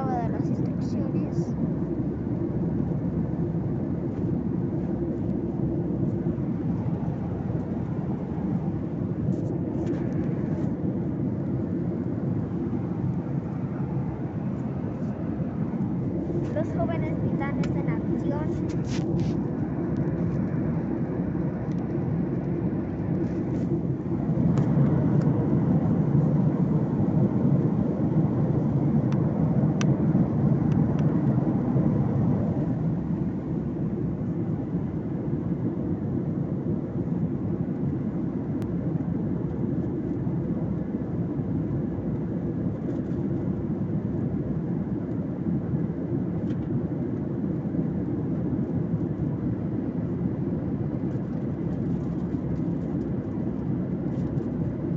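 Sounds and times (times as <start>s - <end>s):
airliner cabin engine rumble: 0.0s - 54.9s.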